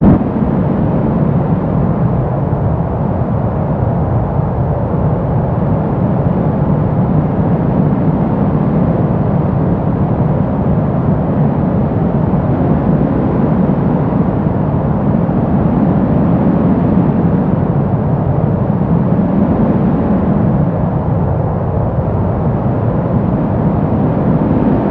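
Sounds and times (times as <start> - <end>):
deep steady brown noise: 0.0 - 24.9.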